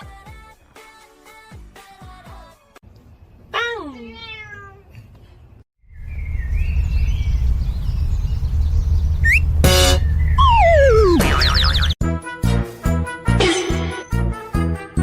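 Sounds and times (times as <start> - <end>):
loud low rumbling noise: 5.9 - 11.9.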